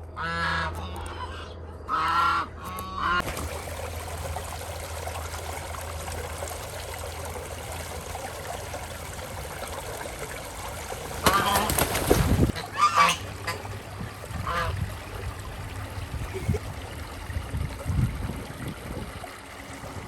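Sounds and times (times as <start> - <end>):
geese honking: 0.1 - 3.3, 10.6 - 11.9, 12.5 - 13.7, 14.4 - 14.8.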